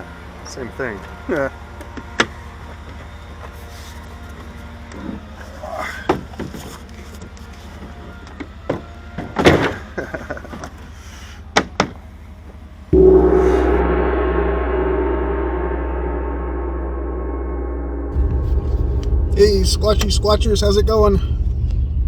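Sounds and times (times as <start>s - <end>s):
struck gong ringing: 12.9s - 22.0s.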